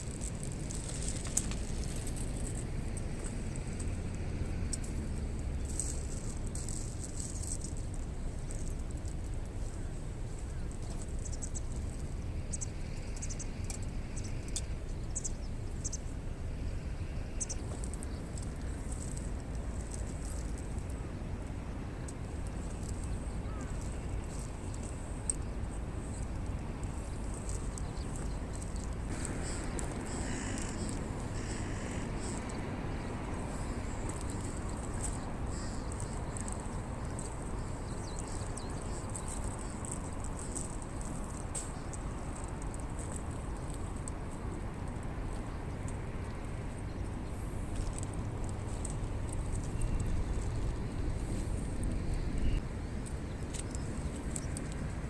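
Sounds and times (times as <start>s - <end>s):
campfire crackles: 0.0s - 12.6s, 22.0s - 45.4s
low fire rumble: 14.8s - 55.0s.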